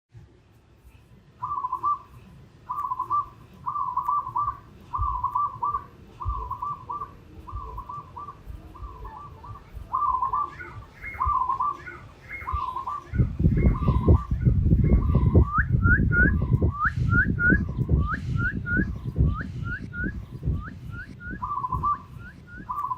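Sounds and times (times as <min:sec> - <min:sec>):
whistle-like warbling phrase: 0:06.3 - 0:22.9.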